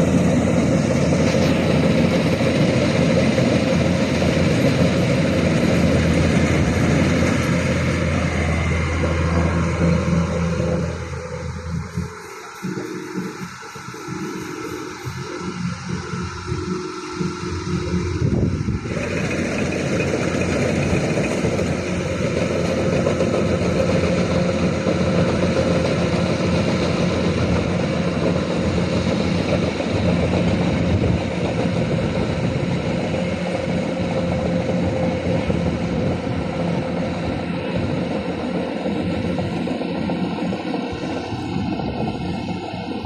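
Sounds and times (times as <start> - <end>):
low hum: 0.0 - 25.2
combine harvester engine drone: 0.0 - 43.0
dense mechanical noise: 0.0 - 43.0
high steady tone: 6.8 - 20.7.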